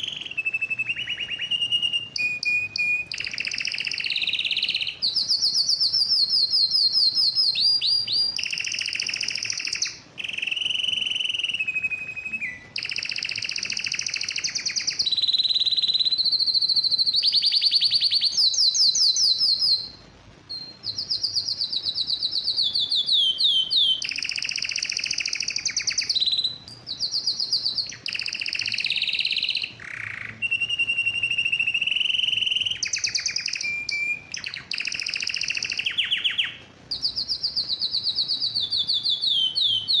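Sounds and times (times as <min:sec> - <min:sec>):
canary singing trills: 0:00.0 - 0:40.0.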